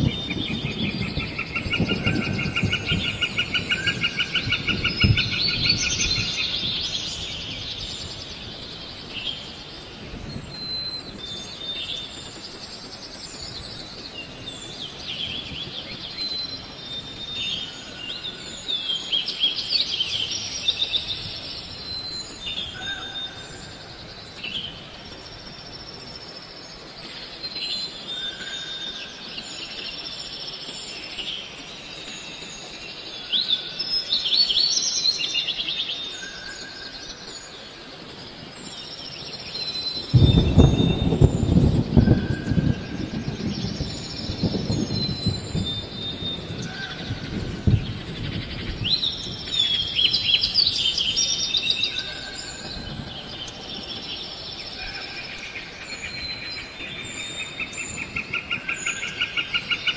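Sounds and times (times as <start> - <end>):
birds chirping and trilling: 0.0 - 59.9.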